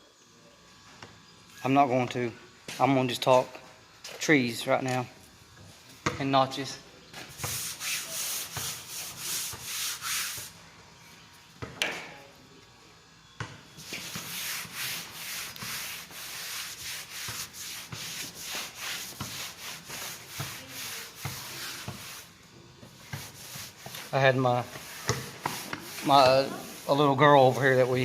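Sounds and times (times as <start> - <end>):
eraser scraping across a board: 7.3 - 10.5, 13.8 - 22.3, 22.9 - 28.0.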